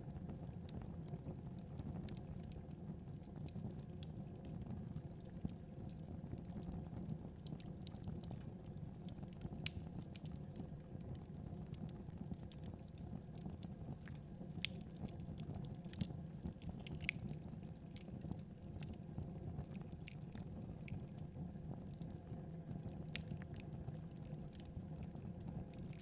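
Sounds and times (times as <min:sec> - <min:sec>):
logs crackling and popping: 0:07.4 - 0:10.5, 0:11.8 - 0:21.2, 0:21.8 - 0:26.0.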